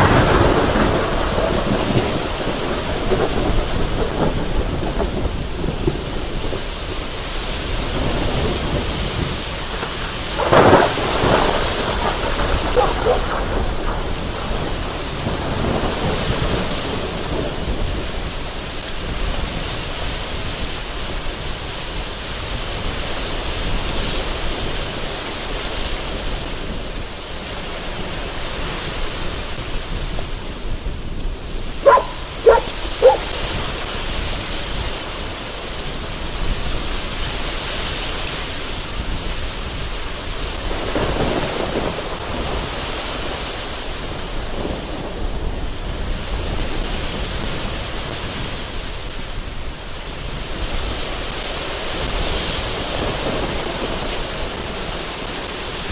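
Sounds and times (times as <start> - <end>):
thunder rumbling: 0.0 - 19.7, 29.5 - 34.5, 39.1 - 47.6
gusting wind: 0.0 - 55.9
heavy rain pouring: 0.0 - 55.9.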